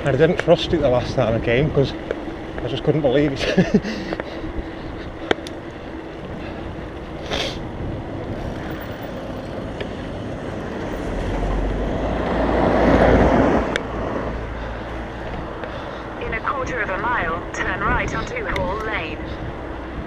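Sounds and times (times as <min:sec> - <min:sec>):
motor vehicle passing: 0:00.0 - 0:20.0
traffic noise: 0:00.0 - 0:20.0.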